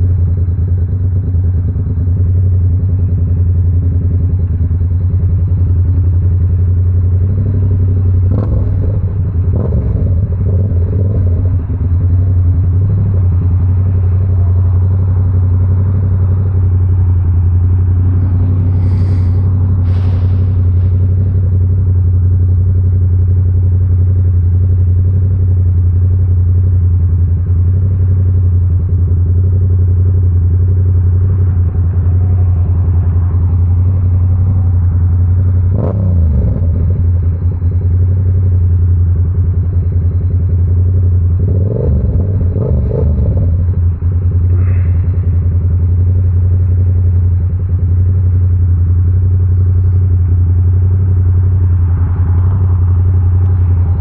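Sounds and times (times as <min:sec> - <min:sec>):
motorcycle engine at steady revs: 0:00.0 - 0:54.0.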